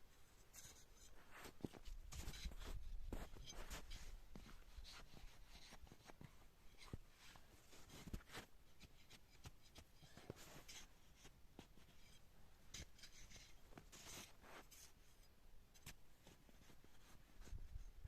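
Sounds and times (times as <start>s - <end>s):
faint scraping or rustling: 0.3s - 18.0s.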